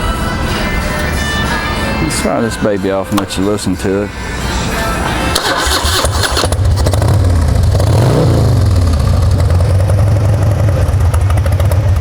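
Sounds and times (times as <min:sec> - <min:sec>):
motorcycle starter cranking: 0:05.3 - 0:09.7
motorcycle engine revving and idling: 0:05.4 - 0:12.0.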